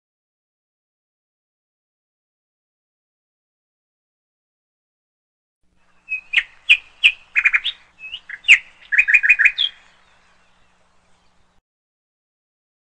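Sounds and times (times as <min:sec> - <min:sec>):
songbird chirping and trilling: 0:05.8 - 0:11.6.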